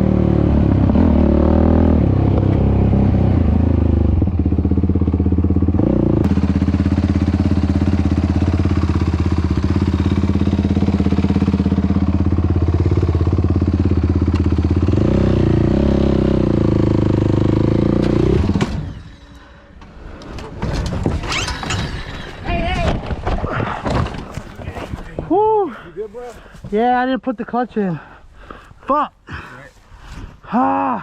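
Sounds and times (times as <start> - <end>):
motorcycle engine revving: 0.0 - 19.5
knocks and clatter: 20.2 - 25.3.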